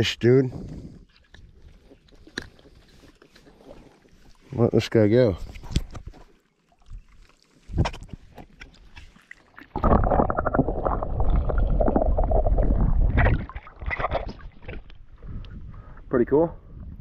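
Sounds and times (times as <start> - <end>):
water gurgling and sloshing: 0.0 - 16.1
light water splashes: 0.8 - 10.0.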